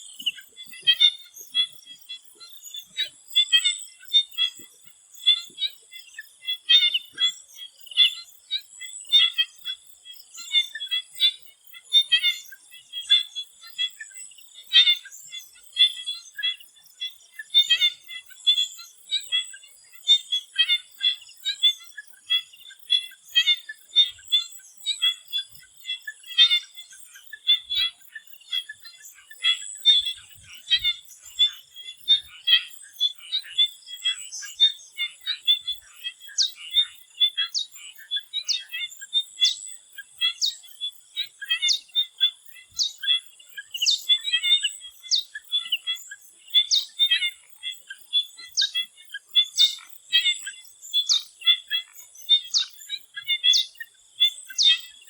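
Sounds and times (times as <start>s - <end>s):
frog chorus chirping: 0.0s - 55.0s.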